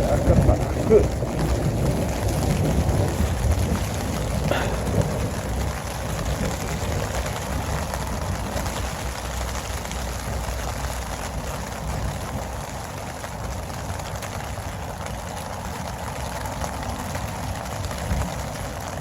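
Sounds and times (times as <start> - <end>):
rain on a tent: 0.0 - 19.0.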